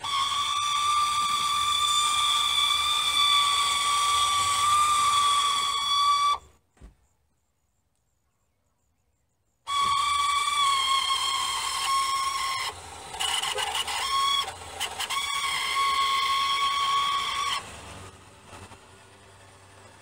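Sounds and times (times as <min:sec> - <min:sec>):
convertible top mechanism screeching: 0:00.0 - 0:06.5, 0:09.7 - 0:20.0
quiet mechanism running: 0:09.7 - 0:20.0.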